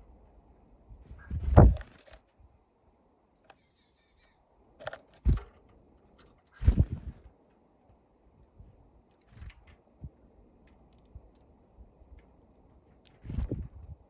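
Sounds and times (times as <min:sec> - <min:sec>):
birds knocking and scrabbling: 0:01.3 - 0:02.3, 0:04.8 - 0:07.5
high bird call: 0:03.4 - 0:04.4.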